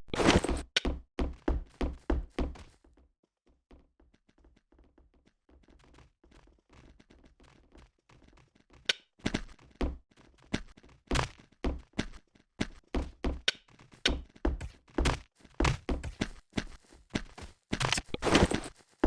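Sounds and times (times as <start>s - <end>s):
handling noises and clicks: 13.4s - 19.0s.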